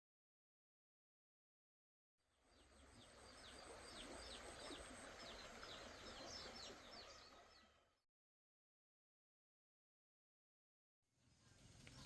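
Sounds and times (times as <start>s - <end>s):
soft outdoor hiss: 11.2s - 12.0s.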